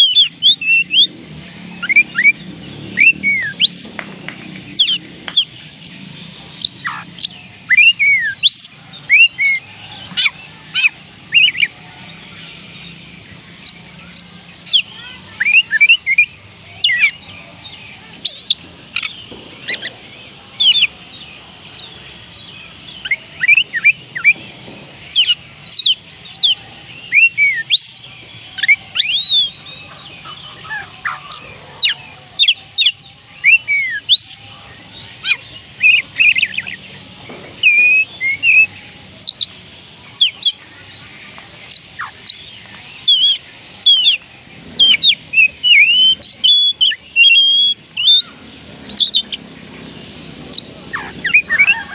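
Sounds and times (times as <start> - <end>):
bird singing whistled notes: 0.0 - 51.9.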